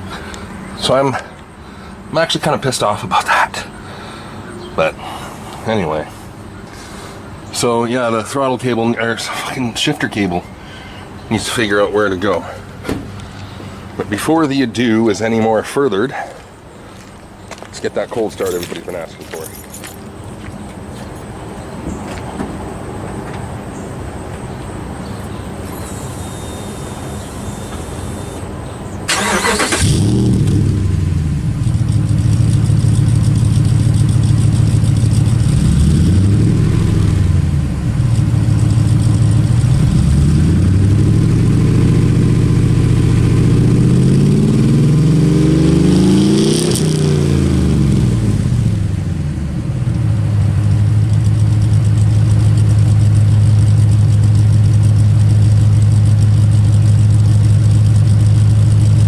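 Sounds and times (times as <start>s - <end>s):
engine idling and revving: 25.6s - 59.0s
engine cranking: 29.1s - 30.8s.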